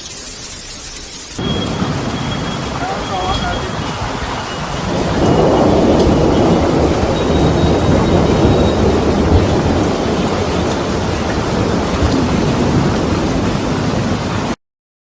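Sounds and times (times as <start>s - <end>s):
wind buffeting microphone: 1.4s - 14.5s.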